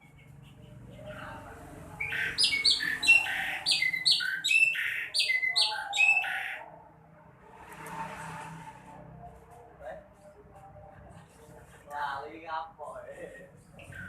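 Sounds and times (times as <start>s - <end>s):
bird chirping: 0.0s - 6.8s, 13.8s - 14.0s.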